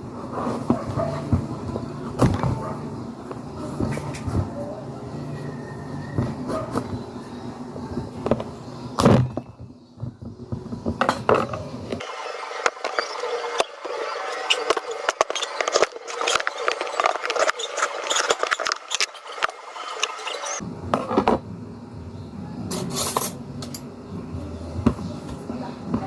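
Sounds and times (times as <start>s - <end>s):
clicking and scraping: 10.6s - 21.2s.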